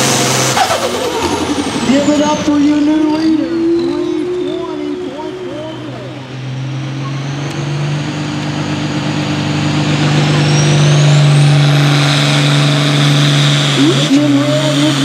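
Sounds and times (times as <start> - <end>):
tractor engine under load: 0.0 - 15.0.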